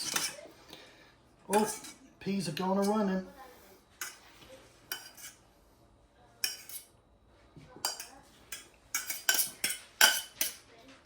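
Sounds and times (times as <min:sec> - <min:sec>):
utensil clinking and scraping plates: 0:00.0 - 0:00.5, 0:01.5 - 0:03.1, 0:03.9 - 0:05.4, 0:06.4 - 0:06.9, 0:07.8 - 0:10.7.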